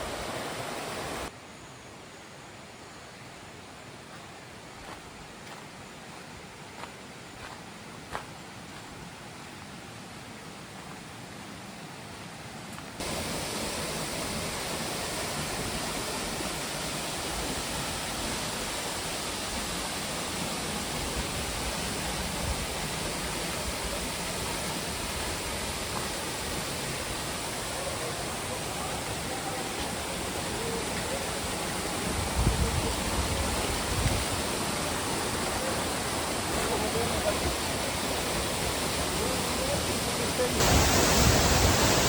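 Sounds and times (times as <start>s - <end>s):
waterfall rushing: 0.0s - 1.3s, 13.0s - 42.0s
wind buffeting microphone: 32.1s - 34.4s.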